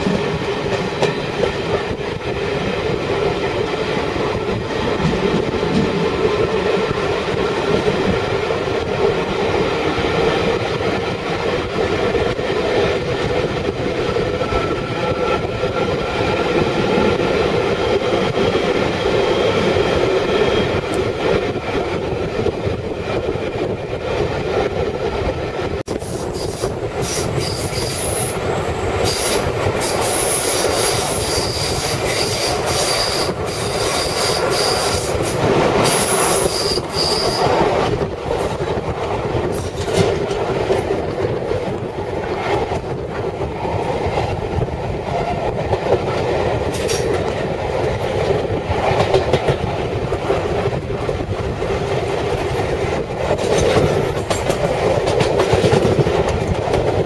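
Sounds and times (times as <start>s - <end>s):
train wheels rumbling on rails: 0.0s - 57.0s
high wheel squeal: 26.1s - 28.4s, 29.0s - 37.6s.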